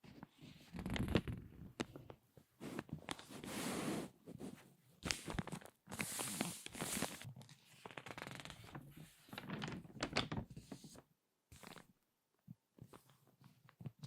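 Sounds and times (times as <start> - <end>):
magazine pages crinkling: 5.1 - 11.0.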